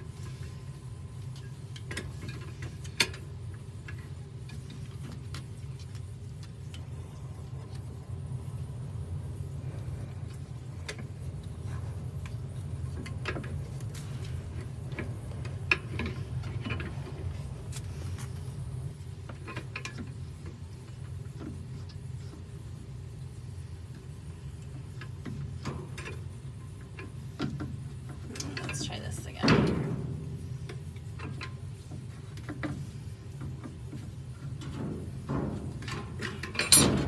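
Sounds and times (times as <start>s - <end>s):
steady low hum: 0.0s - 37.0s
metal parts clicking and clinking: 34.6s - 37.0s.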